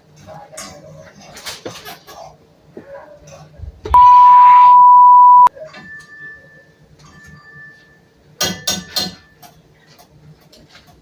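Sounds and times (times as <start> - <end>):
censor bleep: 4.0 - 5.5.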